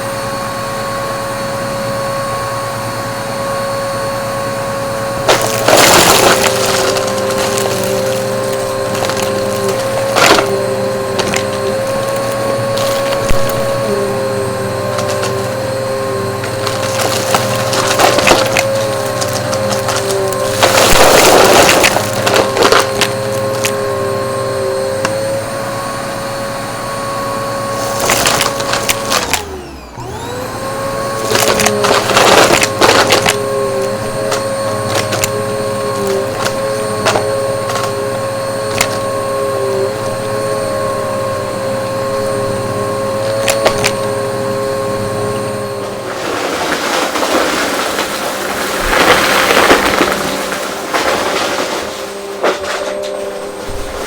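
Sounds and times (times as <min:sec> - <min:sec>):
vacuum cleaner motor whine: 0:00.0 - 0:54.0
debris crunching and rattling: 0:04.7 - 0:25.9, 0:27.4 - 0:54.0.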